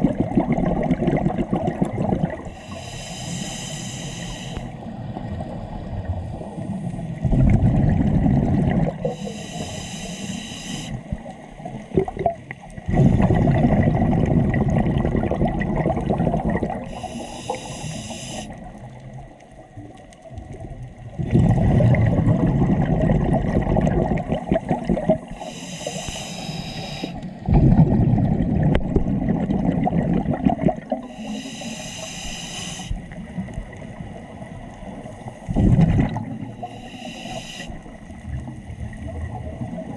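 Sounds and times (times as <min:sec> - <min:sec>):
exhaled bubbles rumbling: 0:00.0 - 0:02.7, 0:04.8 - 0:09.2, 0:11.0 - 0:31.2, 0:32.9 - 0:36.8, 0:37.7 - 0:39.9
regulator inhale hiss: 0:02.4 - 0:04.8, 0:09.0 - 0:11.1, 0:16.8 - 0:18.8, 0:25.3 - 0:27.5, 0:31.0 - 0:33.1, 0:36.5 - 0:38.0.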